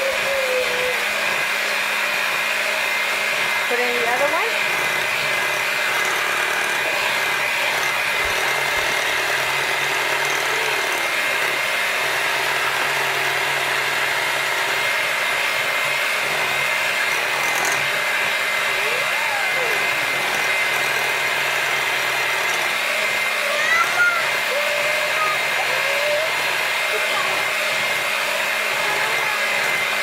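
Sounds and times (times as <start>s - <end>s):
electric mixer running: 0.0s - 30.0s.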